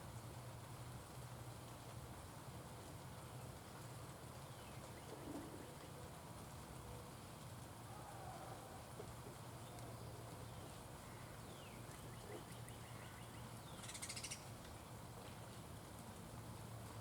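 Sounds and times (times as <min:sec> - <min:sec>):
birds calling: 0:09.4 - 0:14.5.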